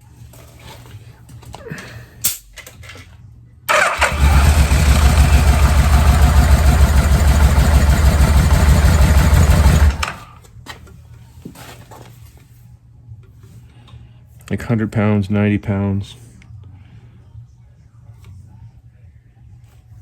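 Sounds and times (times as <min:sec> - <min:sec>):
engine cranking on starter: 0:03.7 - 0:10.3.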